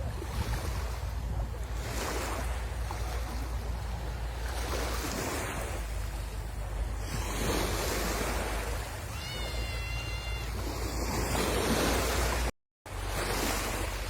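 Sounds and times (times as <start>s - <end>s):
sea waves washing onto shore: 0.0s - 14.0s
wind rumble on microphone: 0.0s - 14.0s.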